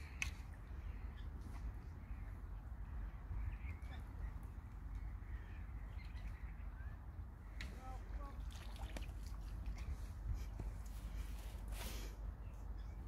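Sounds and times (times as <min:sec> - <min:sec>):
wind on microphone: 0:06.4 - 0:10.9.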